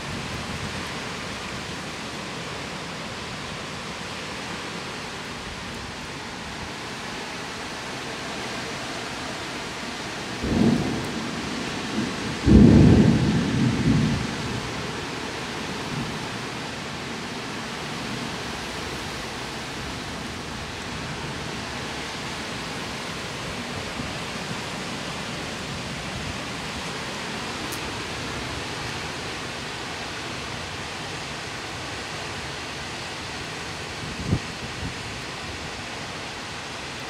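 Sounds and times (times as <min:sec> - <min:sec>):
rain: 0:00.0 - 0:37.0
wind: 0:00.0 - 0:37.0
low thunder rumble: 0:10.4 - 0:14.8.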